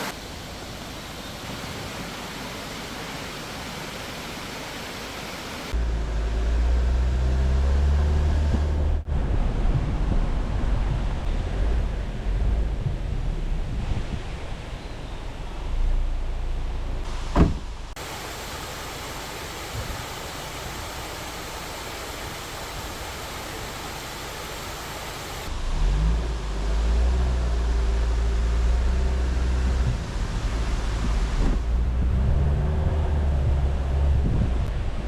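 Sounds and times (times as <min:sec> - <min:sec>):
car engine rumbling while driving: 0:00.0 - 0:35.0
steady rushing noise: 0:09.0 - 0:14.8.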